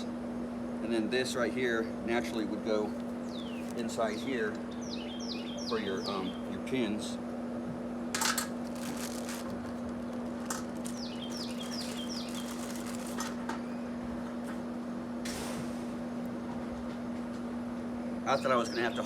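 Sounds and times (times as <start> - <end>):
steady low hum: 0.0 - 19.0
bird singing descending notes: 4.7 - 6.6, 11.0 - 12.5.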